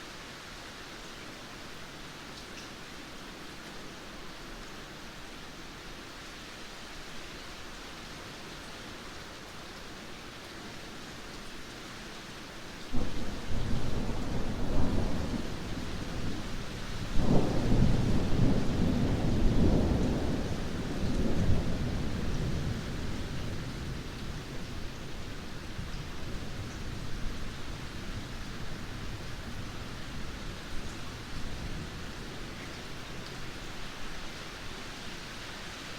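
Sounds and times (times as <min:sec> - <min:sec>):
heavy rain: 0:00.0 - 0:35.9
thunder rumbling: 0:13.0 - 0:24.0.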